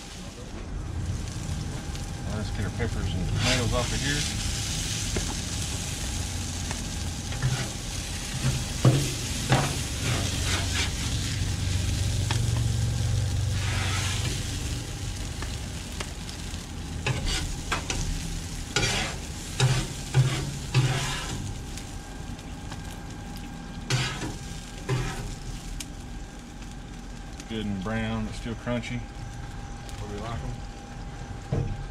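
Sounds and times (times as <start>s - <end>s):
vegetables sizzling on griddle: 0.0s - 31.9s
metal spatula scraping: 7.4s - 7.8s, 9.5s - 11.2s, 13.6s - 14.4s, 17.1s - 18.0s, 18.7s - 21.4s, 23.9s - 25.3s.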